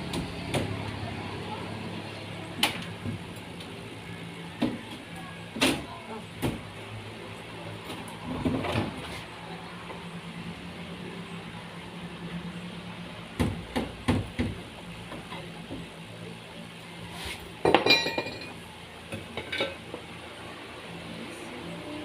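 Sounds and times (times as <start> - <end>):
metal clinking and rattling: 17.7 - 18.6.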